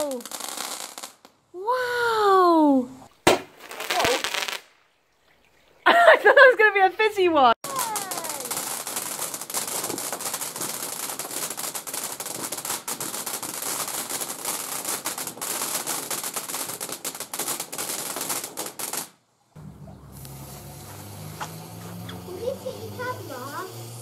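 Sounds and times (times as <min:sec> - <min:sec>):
firework crackling: 0:00.0 - 0:04.9, 0:07.6 - 0:24.0
hiss: 0:20.1 - 0:24.0.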